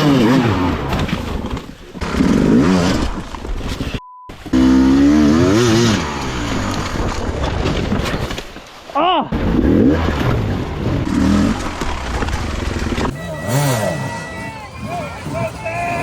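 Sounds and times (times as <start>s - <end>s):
dirt bike engine revving: 0.0s - 3.3s, 4.5s - 7.2s, 9.4s - 16.0s
short steady beep: 4.0s - 4.3s.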